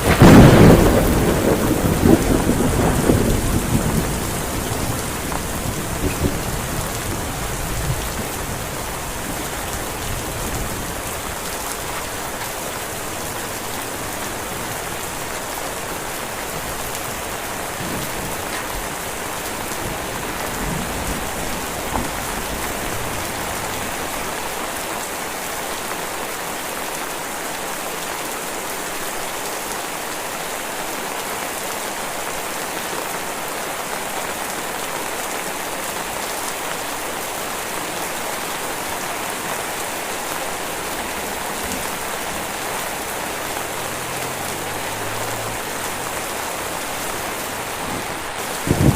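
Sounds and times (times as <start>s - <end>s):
thunder rumble: 0.0s - 24.2s, 41.3s - 48.9s
heavy rain falling: 0.0s - 48.9s.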